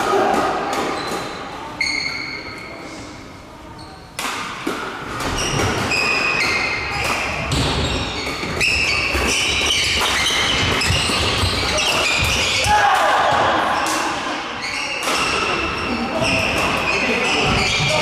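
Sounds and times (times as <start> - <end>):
shoes squeaking on court: 5.2 - 12.6, 14.6 - 18.0.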